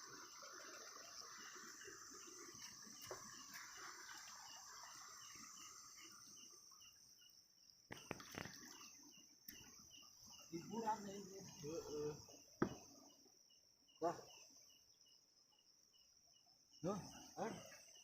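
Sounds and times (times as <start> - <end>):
night insects trilling: 0.0 - 18.0
soft knocks: 12.6 - 12.9.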